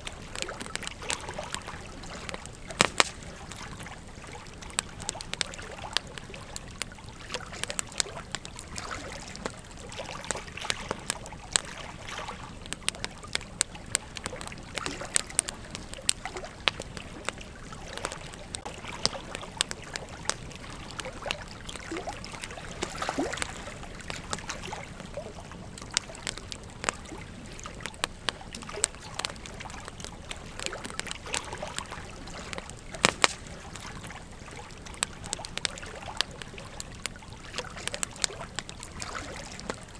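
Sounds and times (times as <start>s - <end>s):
fire hiss: 0.0s - 9.5s
campfire crackling and popping: 0.0s - 39.9s.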